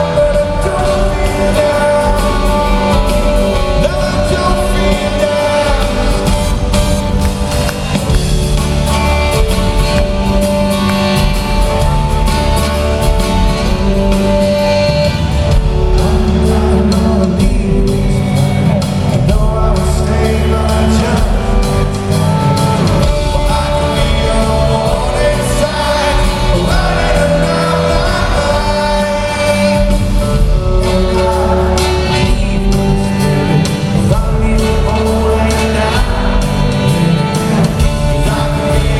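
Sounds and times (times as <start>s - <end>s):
man singing lead vocal: 0.0s - 7.2s, 15.6s - 38.9s
live rock band playing: 0.0s - 38.9s.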